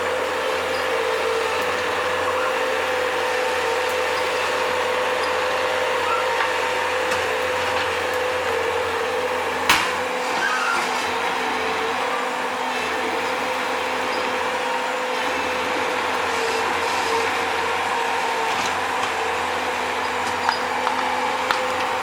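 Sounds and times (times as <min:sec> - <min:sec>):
skid steer engine drone: 0:00.0 - 0:22.0.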